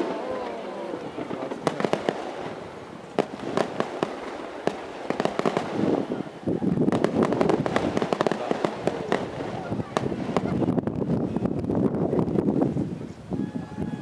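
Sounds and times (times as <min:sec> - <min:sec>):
fireworks bangs: 0:00.0 - 0:11.2
fireworks crackling: 0:00.0 - 0:12.4.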